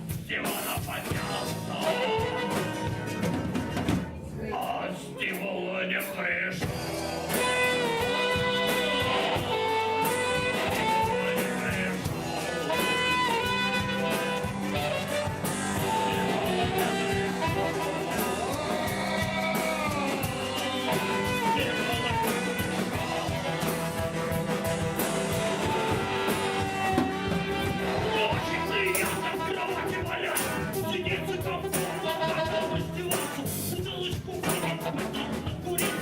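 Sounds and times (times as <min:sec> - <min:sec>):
live band playing blues: 0:00.0 - 0:05.4, 0:06.0 - 0:36.0
bending lead melody: 0:06.7 - 0:33.8.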